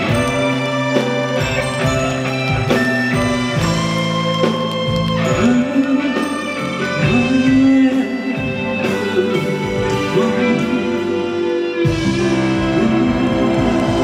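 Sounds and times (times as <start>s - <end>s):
live band music with guitar: 0.0s - 14.0s
heavy bass: 8.5s - 14.0s.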